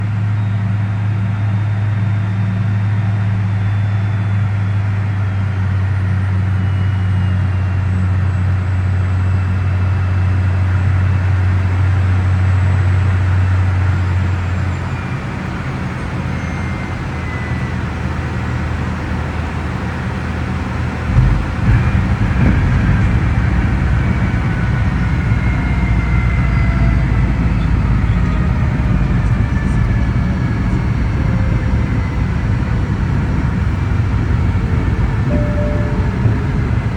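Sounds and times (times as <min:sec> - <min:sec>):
rough rolling rumble: 0:12.4 - 0:36.9
jet engine and airflow hum: 0:12.9 - 0:36.9
wheels touching down thump: 0:21.1 - 0:23.2.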